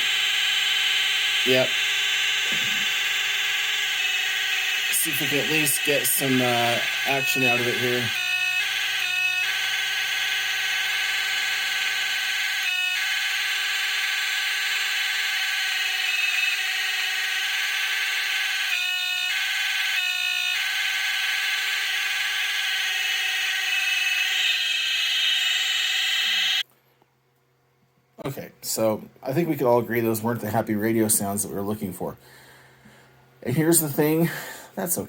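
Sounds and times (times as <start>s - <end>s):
whining tones: 0.0s - 26.6s
radio hiss: 4.9s - 8.2s.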